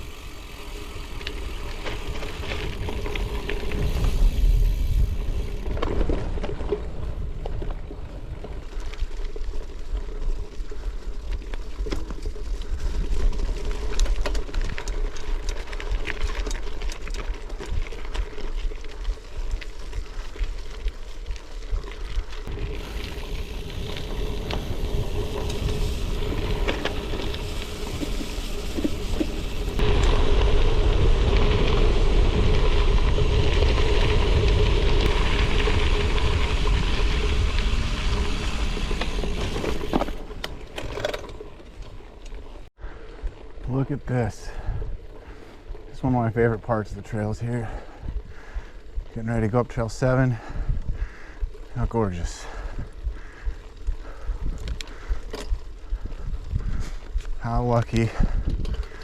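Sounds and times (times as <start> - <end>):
wind rumbling on microphone: 0.0 - 40.8, 44.5 - 46.0, 47.4 - 49.5, 50.4 - 59.0
bike tyres on gravel: 0.0 - 59.0
small rattles and clicks: 10.5 - 30.2.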